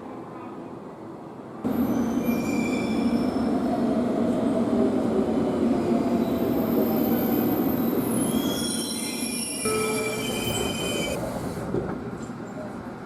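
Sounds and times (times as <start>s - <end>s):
train running on rails: 0.0s - 13.0s
thin high squeal: 8.2s - 11.2s.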